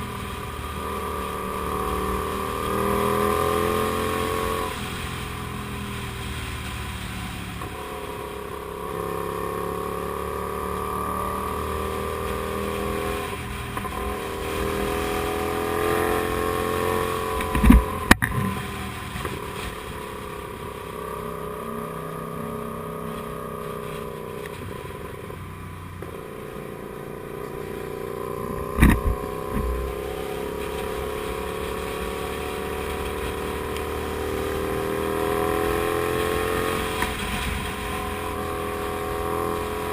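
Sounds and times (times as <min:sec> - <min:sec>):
motorcycle engine accelerating: 0:00.0 - 0:39.9
sharp thumps: 0:17.4 - 0:18.6, 0:28.4 - 0:30.0.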